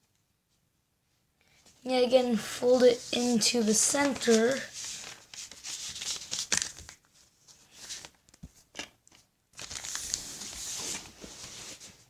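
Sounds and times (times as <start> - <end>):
paper rustling and crinkling: 2.9 - 12.0.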